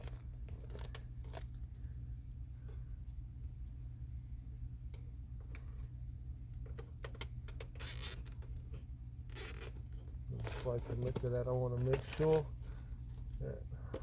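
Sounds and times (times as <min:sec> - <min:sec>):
crinkly rustle of ductwork: 0:00.0 - 0:02.9, 0:09.8 - 0:13.6
steady low hum: 0:00.0 - 0:14.0.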